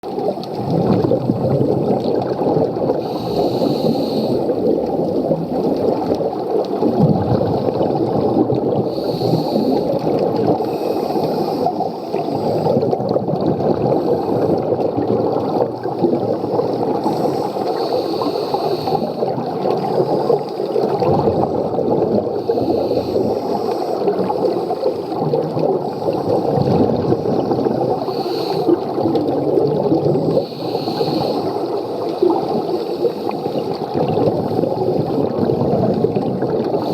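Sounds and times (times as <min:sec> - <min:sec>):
bubbling gurgle of exhaled air: 0:00.0 - 0:36.9
regulator inhalation hiss: 0:03.0 - 0:04.6, 0:08.9 - 0:10.0, 0:10.6 - 0:12.8, 0:16.5 - 0:19.2, 0:22.4 - 0:25.1, 0:28.0 - 0:28.8, 0:30.2 - 0:33.7.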